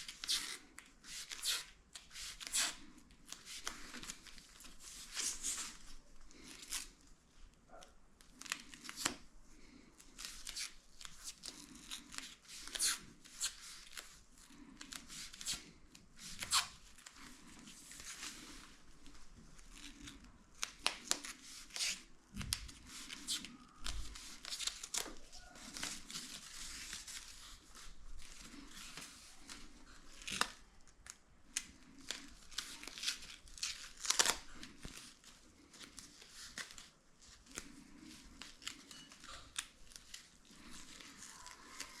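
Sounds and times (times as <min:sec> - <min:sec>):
material tearing: 0:30.1 - 0:34.8.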